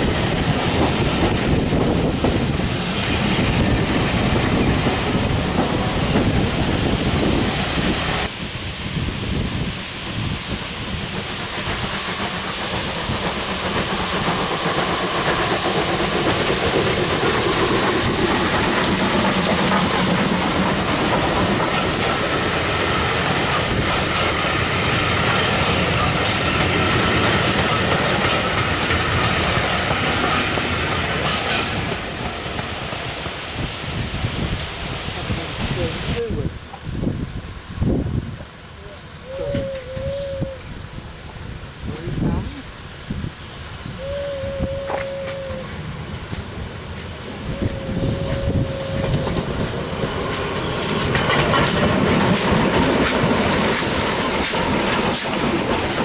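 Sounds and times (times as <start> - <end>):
high hiss: 0.0 - 56.0
train coaches rolling past: 0.0 - 56.0
wheels clicking over rail joints: 49.0 - 56.0.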